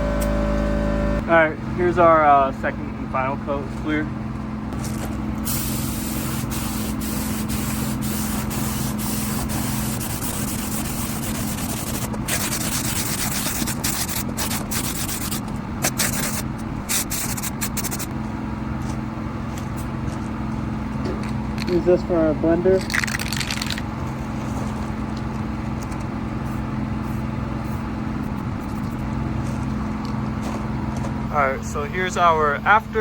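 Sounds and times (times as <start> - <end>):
mechanical hum: 0.0 - 33.0
spray gun hissing: 5.4 - 18.1.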